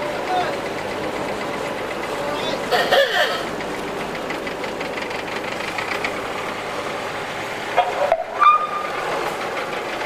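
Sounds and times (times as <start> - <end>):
engines running: 0.0 - 10.0.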